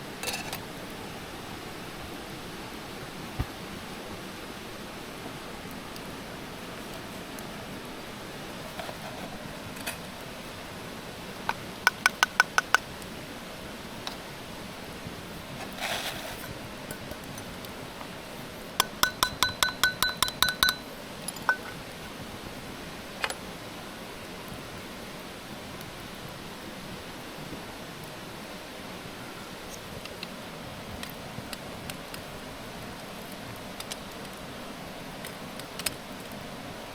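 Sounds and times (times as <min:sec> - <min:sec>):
background hiss: 0:00.0 - 0:36.9.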